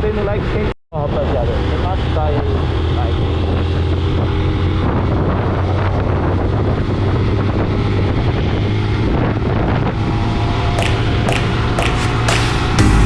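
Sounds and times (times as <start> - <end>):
wind noise on microphone: 0.0 - 12.8
vehicle engine running: 9.1 - 13.0.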